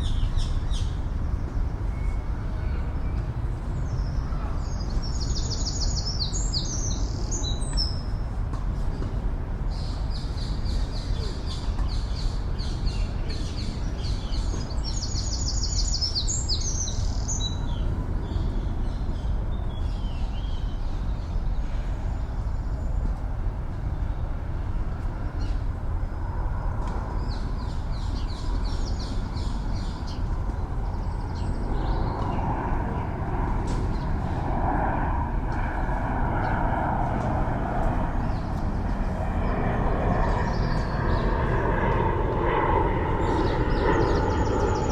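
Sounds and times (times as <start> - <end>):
city traffic rumble: 0.0 - 44.9
aircraft engine drone: 20.2 - 44.9
songbirds chirping: 25.4 - 44.9.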